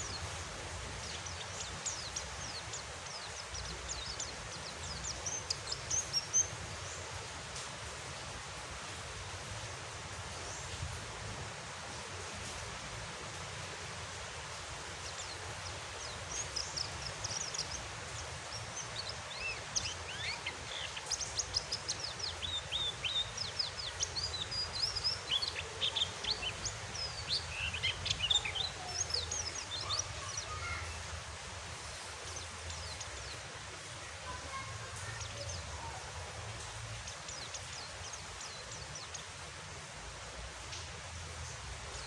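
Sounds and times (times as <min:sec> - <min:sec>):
bird twittering in high chirps: 0:00.0 - 0:07.0, 0:15.0 - 0:31.0
rain hissing: 0:00.0 - 0:42.0.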